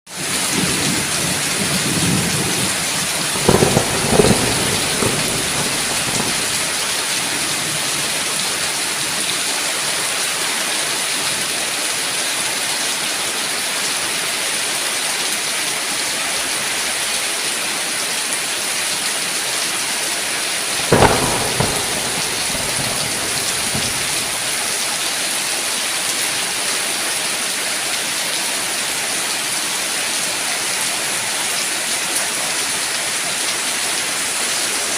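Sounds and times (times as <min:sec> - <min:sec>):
heavy rain: 0:00.1 - 0:34.9
thunder cracks: 0:00.5 - 0:08.8, 0:20.7 - 0:24.9.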